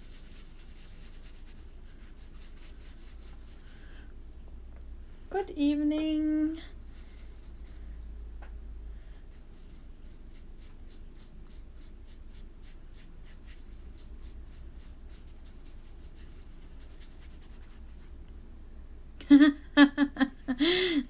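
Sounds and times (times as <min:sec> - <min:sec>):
brush strokes on paper: 0:00.0 - 0:03.9, 0:06.7 - 0:08.0, 0:09.3 - 0:18.2
low steady hum: 0:00.0 - 0:21.0.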